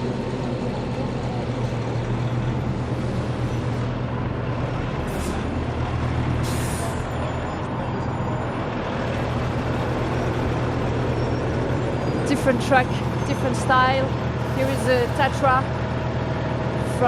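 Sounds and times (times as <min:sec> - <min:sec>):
diesel truck engines droning: 0:00.0 - 0:17.0
air brake hissing: 0:05.0 - 0:05.5, 0:06.4 - 0:07.1.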